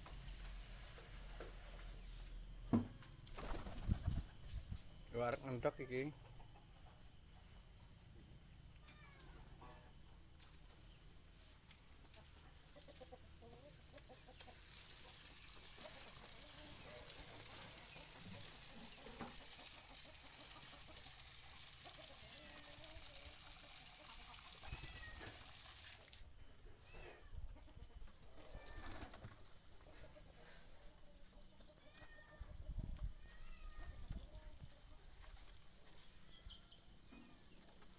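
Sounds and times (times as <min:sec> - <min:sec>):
chickens clucking: 0:12.0 - 0:25.3, 0:27.0 - 0:31.6.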